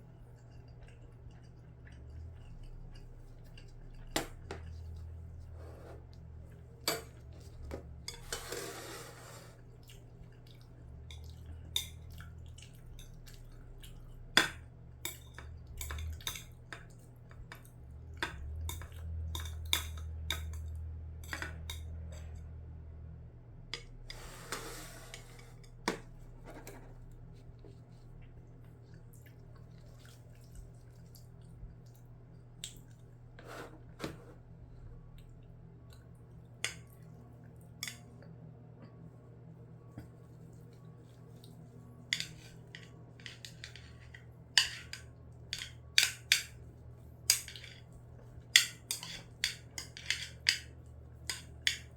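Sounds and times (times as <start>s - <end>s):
cutlery scraping a dish: 6.9s - 9.6s, 24.1s - 27.0s, 33.4s - 34.4s, 42.1s - 46.5s, 48.6s - 50.7s
cutlery clinking against dishes: 42.1s - 46.6s, 47.3s - 47.9s, 48.6s - 51.9s.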